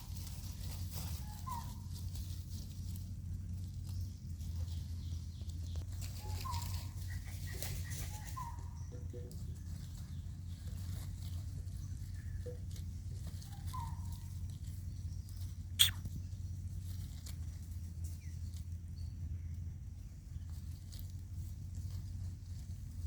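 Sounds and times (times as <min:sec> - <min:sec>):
low rumble: 0:00.0 - 0:07.5
faint short squeaks: 0:15.7 - 0:16.1.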